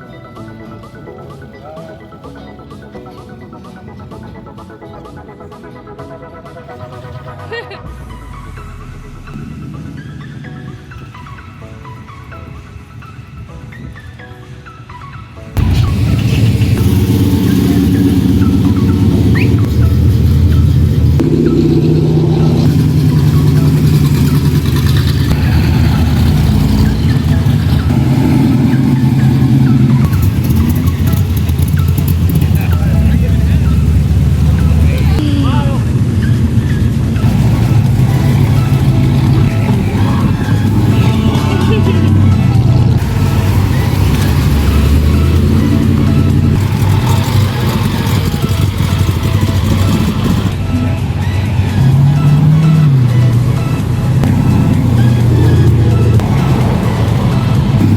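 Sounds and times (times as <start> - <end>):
electronic background music: 0.0 - 57.9
car engine running: 7.9 - 12.4, 15.6 - 35.2, 35.8 - 57.9.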